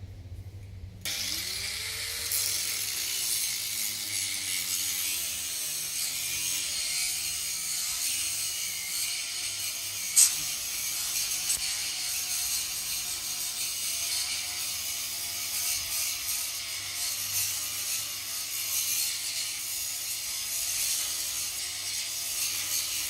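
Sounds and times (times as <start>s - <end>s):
rasping mechanical noise: 1.0s - 16.6s.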